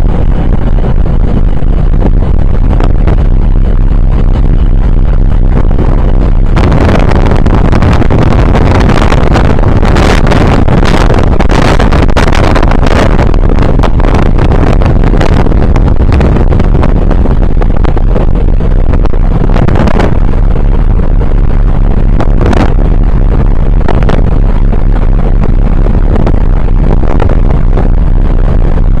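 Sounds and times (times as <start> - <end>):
ship engine: 0.0 - 29.0
ship wash: 0.0 - 29.0
wind buffeting microphone: 0.0 - 29.0.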